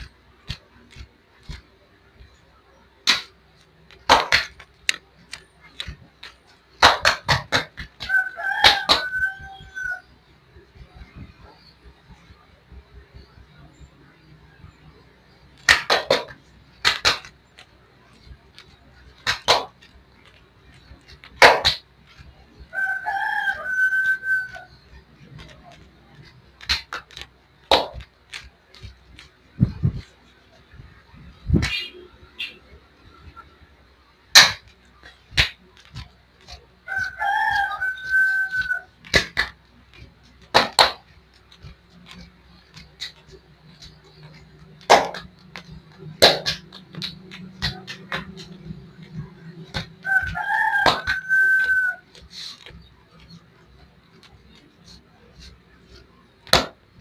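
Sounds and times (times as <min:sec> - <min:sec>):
hands slapping bare legs: 0:00.0 - 0:09.2, 0:15.6 - 0:22.7, 0:24.0 - 0:30.7, 0:31.3 - 0:31.8, 0:34.3 - 0:57.0
rooster crowing: 0:08.0 - 0:10.1, 0:22.7 - 0:24.7, 0:36.8 - 0:38.9, 0:50.0 - 0:52.0.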